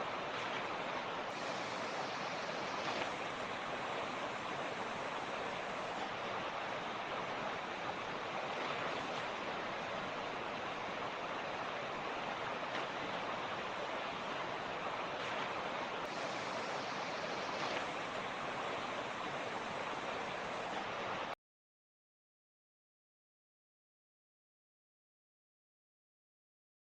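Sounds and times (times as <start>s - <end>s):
creek water rushing over rocks: 0.0s - 21.4s.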